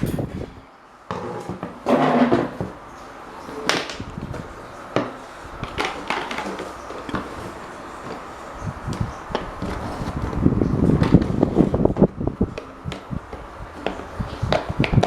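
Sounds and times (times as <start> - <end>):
clicks and knocks of handling: 5.0 - 8.3.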